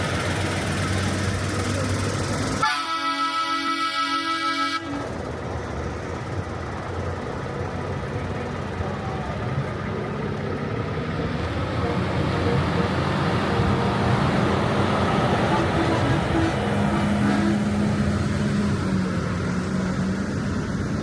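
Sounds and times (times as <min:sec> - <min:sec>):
truck engines running: 0:00.0 - 0:21.0
truck air horn blast: 0:02.6 - 0:05.1, 0:11.8 - 0:14.2, 0:15.4 - 0:18.0.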